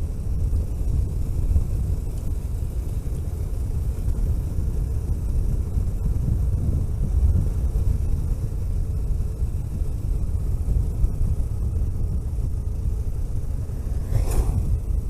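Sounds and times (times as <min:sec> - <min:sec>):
vehicle engine and tyre rumble: 0:00.0 - 0:15.0
brief rushing sound: 0:13.2 - 0:15.0.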